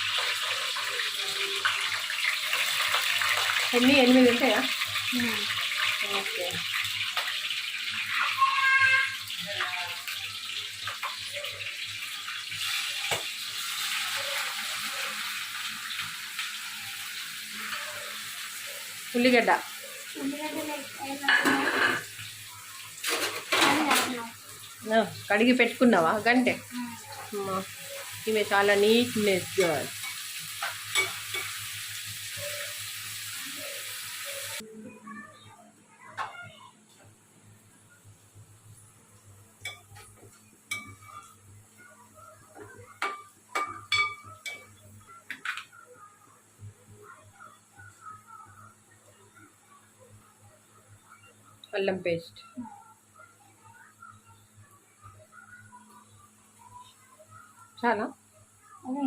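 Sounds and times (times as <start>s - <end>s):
onions sizzling in oil: 0.0s - 34.6s, 38.0s - 59.0s
water running from a tap: 0.0s - 34.6s.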